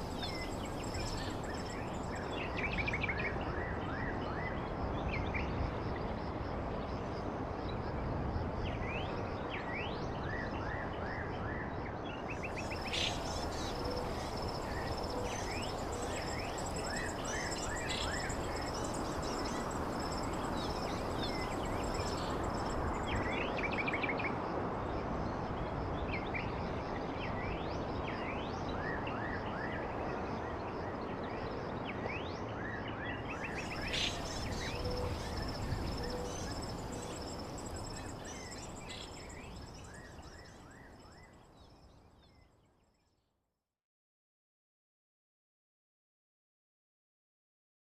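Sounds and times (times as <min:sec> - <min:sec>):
birds chirping: 0:12.6 - 0:23.2, 0:33.5 - 0:40.2.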